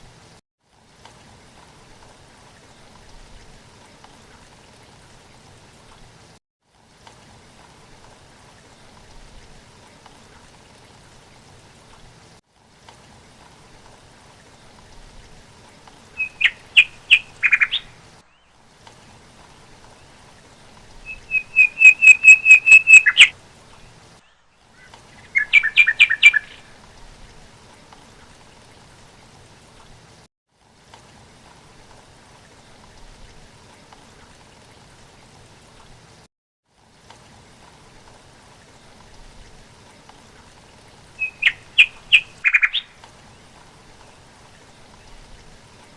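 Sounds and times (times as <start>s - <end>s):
faint steady hiss: 0.0s - 45.9s
bird chirping: 16.2s - 18.5s, 21.0s - 23.3s, 24.2s - 26.6s, 41.2s - 42.9s.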